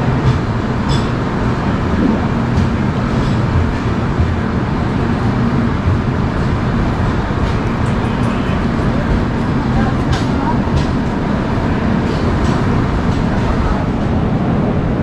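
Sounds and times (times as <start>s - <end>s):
train coach rumbling on track: 0.0s - 15.0s.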